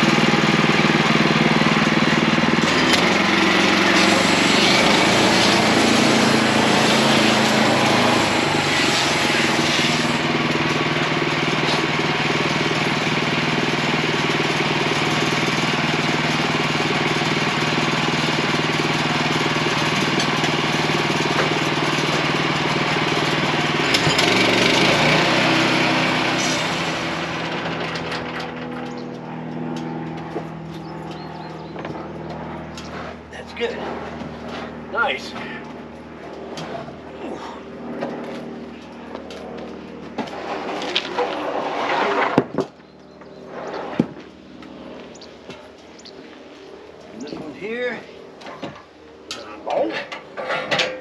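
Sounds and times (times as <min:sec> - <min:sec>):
gasoline engine running: 0:00.0 - 0:51.0
band saw blade cutting log: 0:02.5 - 0:10.8, 0:21.3 - 0:27.6.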